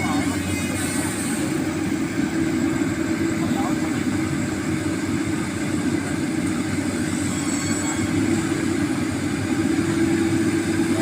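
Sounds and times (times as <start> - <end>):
heavy diesel engine humming: 0.0 - 11.0.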